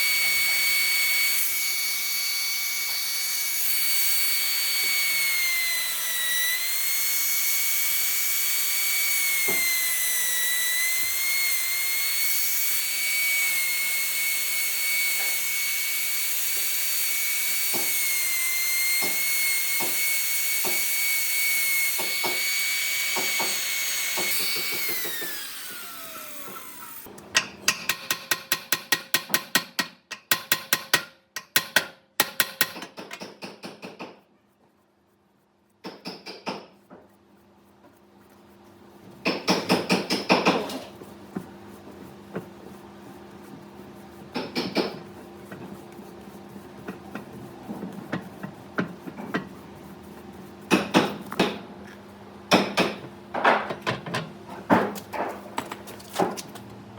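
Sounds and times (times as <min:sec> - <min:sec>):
power tool motor whining: 0:17.5 - 0:27.1
sharp clicks and knocks: 0:27.2 - 0:34.2.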